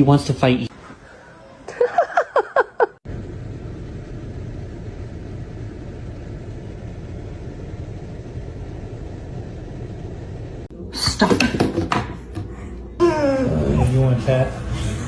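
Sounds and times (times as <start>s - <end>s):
low rumbling noise: 3.1s - 11.0s.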